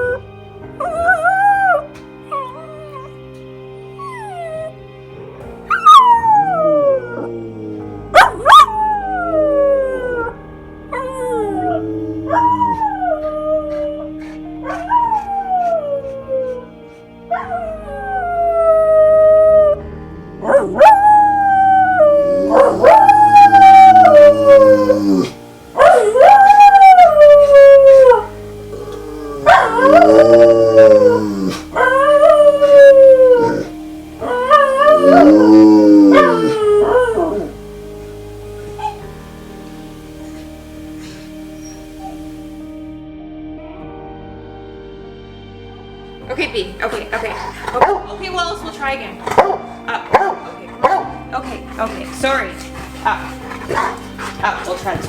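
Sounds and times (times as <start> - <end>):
background music: 0.0 - 55.0
howls sliding down in pitch: 20.4 - 37.6.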